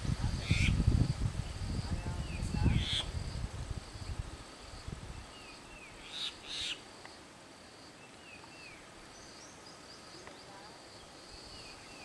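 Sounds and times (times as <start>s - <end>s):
loud high bird calls: 2.3s - 3.1s, 5.4s - 6.8s.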